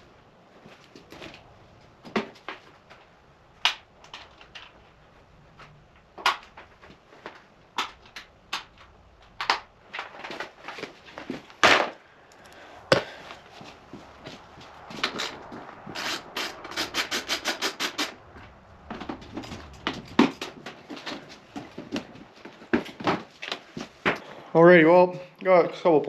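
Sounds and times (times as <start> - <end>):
hand tools clicking and knocking: 14.8 - 18.2.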